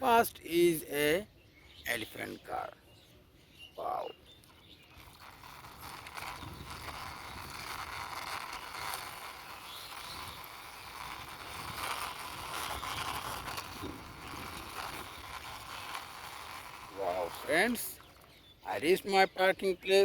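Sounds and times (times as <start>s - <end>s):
toy car wheels rolling: 4.4s - 19.0s.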